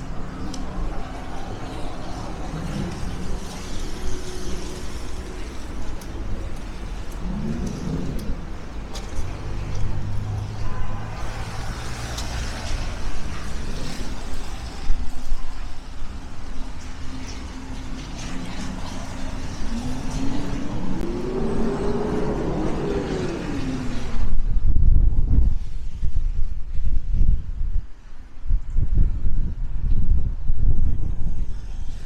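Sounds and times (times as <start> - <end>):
vehicles passing with low hum: 0.0 - 32.0
engine revving: 18.2 - 24.2.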